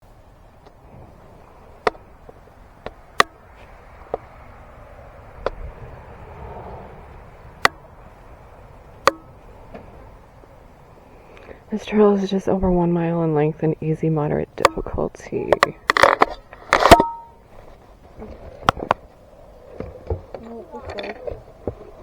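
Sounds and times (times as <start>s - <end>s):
faint steady hiss: 0.0s - 22.0s
sharp clicks or knocks: 2.8s - 3.4s, 9.0s - 9.9s.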